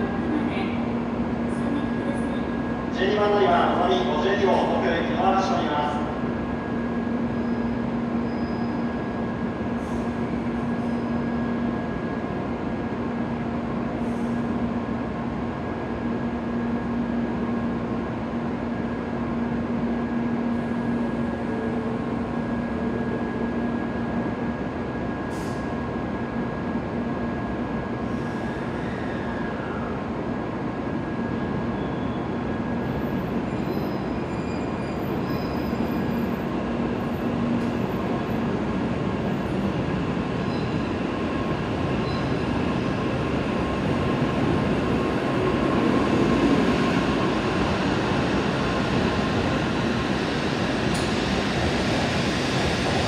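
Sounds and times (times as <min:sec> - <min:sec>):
train equipment hum: 0:36.2 - 0:53.0.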